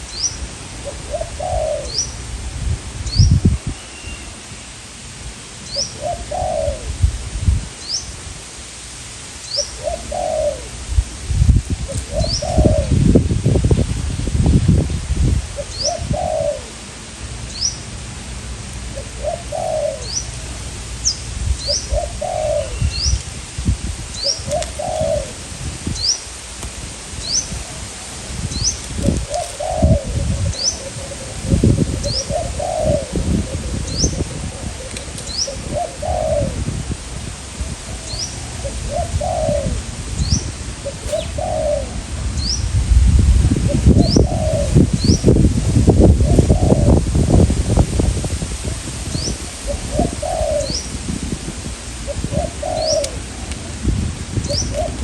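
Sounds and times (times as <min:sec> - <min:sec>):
wind buffeting microphone: 0:00.0 - 0:03.8, 0:05.1 - 0:08.5, 0:09.8 - 0:16.9, 0:18.5 - 0:55.0
doves cooing: 0:00.2 - 0:02.2, 0:05.8 - 0:07.0, 0:09.6 - 0:10.8, 0:11.9 - 0:13.0, 0:15.6 - 0:16.8, 0:18.9 - 0:23.2, 0:24.1 - 0:26.2, 0:27.3 - 0:36.7, 0:37.4 - 0:42.6, 0:43.7 - 0:45.3, 0:46.1 - 0:47.0, 0:48.6 - 0:51.0, 0:52.0 - 0:53.8, 0:54.5 - 0:55.0.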